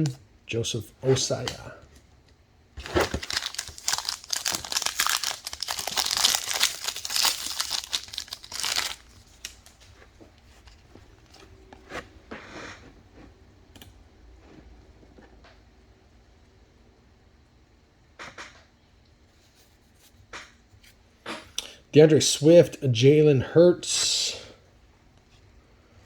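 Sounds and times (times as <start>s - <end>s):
wrapper tearing and crinkling: 2.8s - 9.9s.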